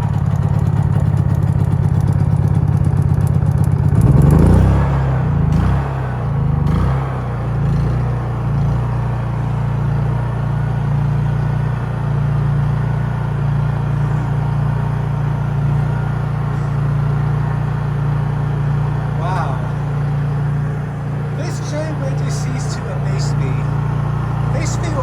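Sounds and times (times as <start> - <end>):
generator engine humming: 0.0 - 25.0.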